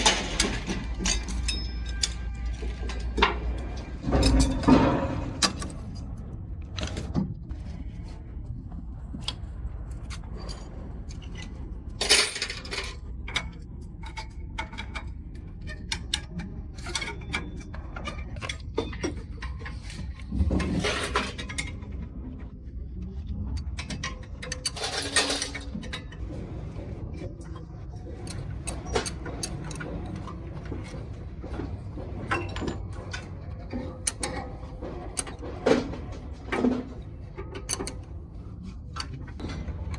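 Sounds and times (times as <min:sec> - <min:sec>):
metal tools clinking and tapping: 0:00.0 - 0:06.0, 0:10.4 - 0:21.8, 0:23.8 - 0:26.2, 0:32.2 - 0:39.4.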